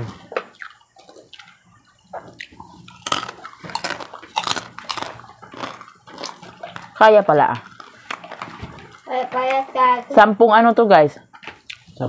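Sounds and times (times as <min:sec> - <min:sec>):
crunching and chewing snack: 0:00.5 - 0:07.0, 0:07.6 - 0:09.1.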